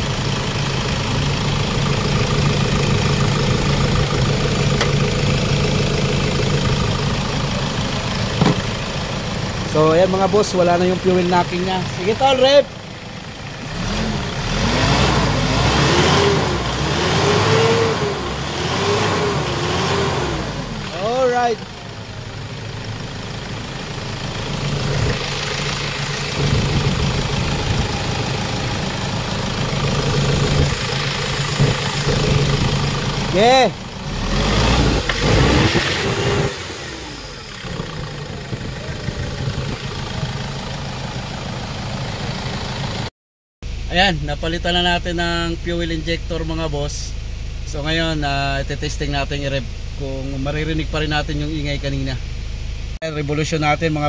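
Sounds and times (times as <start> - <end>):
diesel engine revving: 0.0 - 43.1.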